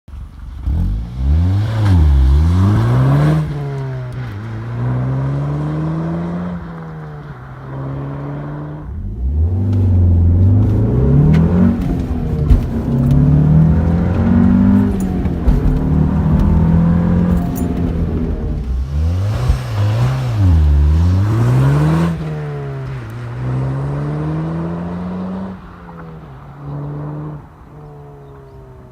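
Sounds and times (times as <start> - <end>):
car engine accelerating hard: 0.4 - 28.9.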